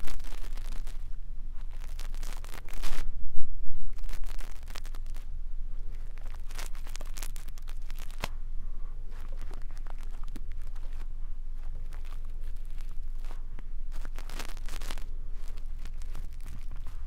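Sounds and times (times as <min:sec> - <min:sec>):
brush scratching on microphone: 0:00.0 - 0:03.1, 0:03.9 - 0:17.0.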